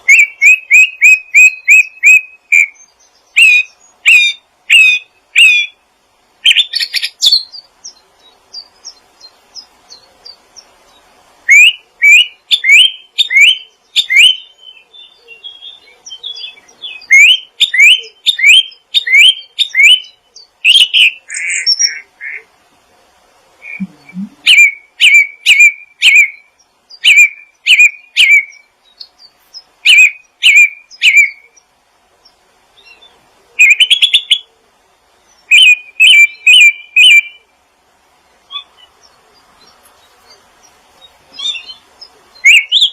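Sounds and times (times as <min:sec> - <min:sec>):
songbird whistled chirps: 0:00.0 - 0:05.8, 0:06.5 - 0:22.0, 0:23.6 - 0:31.6, 0:32.8 - 0:34.5, 0:35.3 - 0:37.4, 0:41.0 - 0:42.9.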